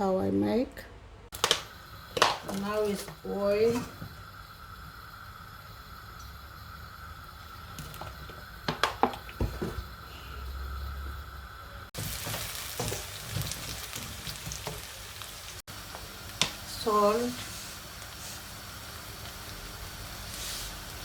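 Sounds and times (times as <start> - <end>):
food sizzling in hot oil: 1.4 - 21.0.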